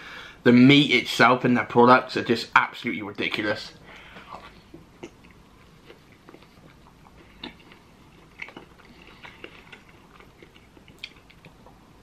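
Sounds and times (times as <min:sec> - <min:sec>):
person chewing food: 0:03.9 - 0:12.0.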